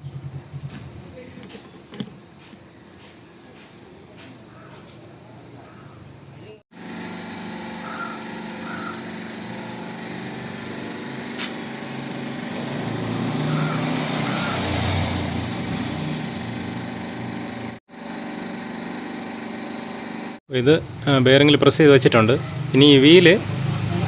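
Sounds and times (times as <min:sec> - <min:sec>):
hydraulic press humming: 0:06.7 - 0:20.4.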